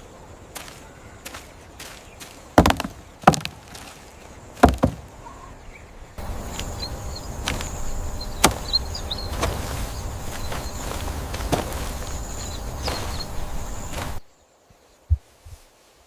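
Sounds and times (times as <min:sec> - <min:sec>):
heavy chopping knocks: 0:02.6 - 0:03.8, 0:04.6 - 0:05.1, 0:08.4 - 0:08.7.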